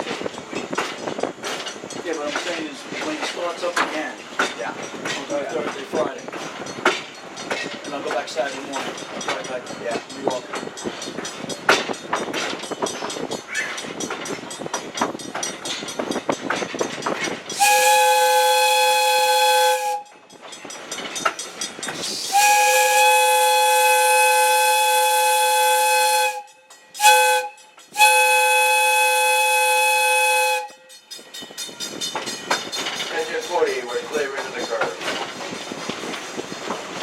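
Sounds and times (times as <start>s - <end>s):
rattle of moving train: 0.0s - 37.0s
steam whistle blasts: 17.6s - 20.1s, 22.3s - 30.8s.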